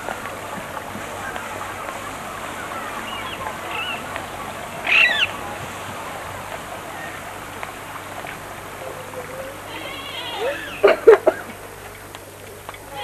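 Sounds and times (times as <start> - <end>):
birds chirping: 0.0 - 13.0
steady outdoor hiss: 0.0 - 13.0
bird call falling in pitch: 4.8 - 5.4.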